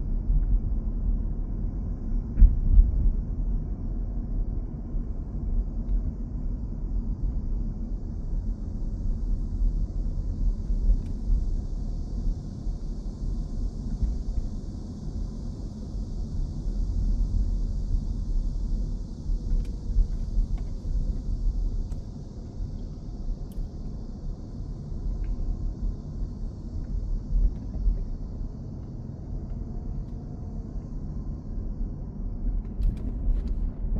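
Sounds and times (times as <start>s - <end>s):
gusty low rumble: 24.9s - 33.9s.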